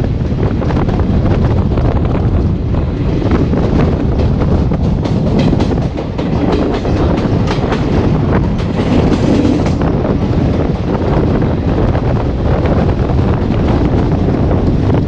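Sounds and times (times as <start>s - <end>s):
train running rumble: 0.0s - 15.0s
wind on microphone: 0.0s - 15.0s
train wheels clicking over joints: 1.6s - 10.0s.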